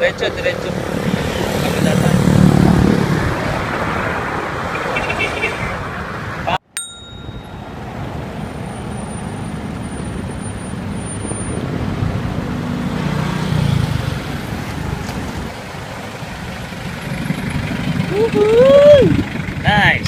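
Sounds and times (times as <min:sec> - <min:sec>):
wind buffeting microphone: 0:00.2 - 0:04.8.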